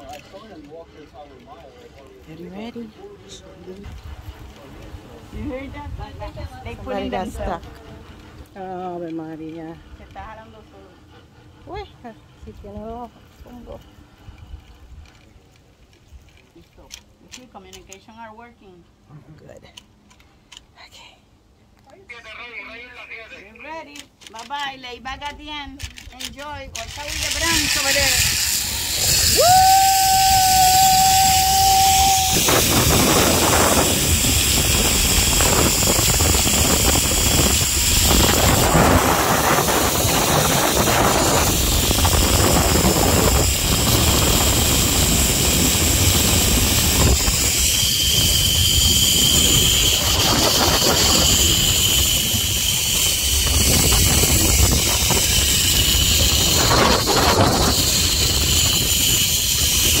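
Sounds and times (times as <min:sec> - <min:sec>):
wind buffeting microphone: 0:02.3 - 0:15.4, 0:25.2 - 1:00.0
zipline pulleys hissing on cable: 0:26.8 - 1:00.0
person shouting woo: 0:29.2 - 0:32.5.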